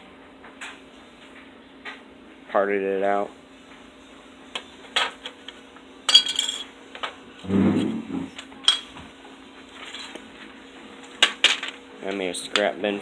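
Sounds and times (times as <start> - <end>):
small hard parts clinking: 6.1 - 6.7, 8.7 - 8.9.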